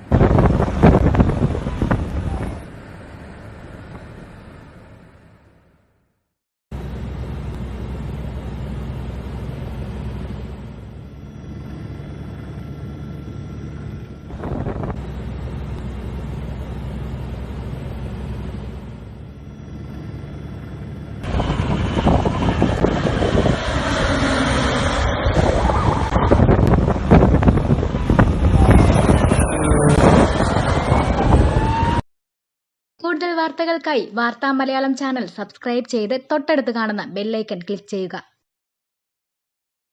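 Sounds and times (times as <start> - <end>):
gusty wind buffeting: 0.0 - 5.4, 11.6 - 19.0, 19.8 - 32.0
engine drone: 0.0 - 6.0, 6.7 - 32.0.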